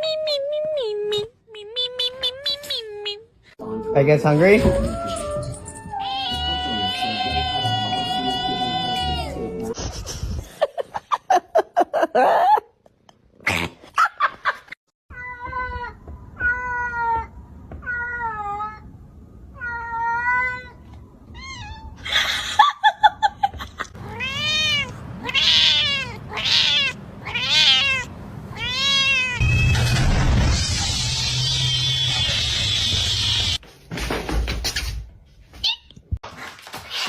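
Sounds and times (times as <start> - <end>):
cat meowing: 5.9 - 9.6, 24.0 - 29.6.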